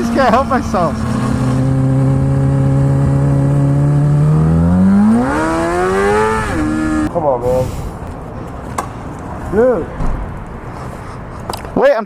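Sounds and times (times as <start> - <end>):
motorcycle engine revving: 0.0 - 7.1.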